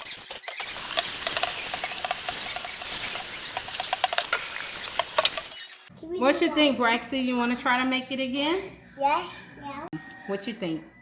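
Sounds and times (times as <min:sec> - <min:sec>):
tap water running into sink: 0:00.6 - 0:05.6.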